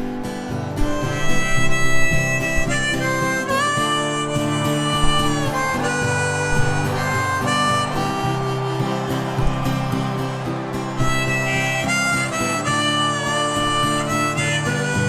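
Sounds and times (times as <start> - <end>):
harmonica melody: 0.0 - 15.0
strummed acoustic guitar: 0.0 - 15.0.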